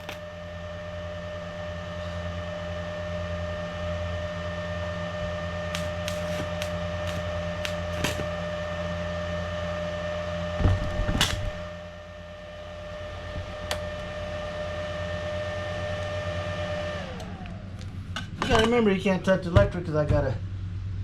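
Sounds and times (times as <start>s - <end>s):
electric motor humming: 0.0s - 1.4s, 5.1s - 8.6s
sharp clicks: 5.8s - 8.3s.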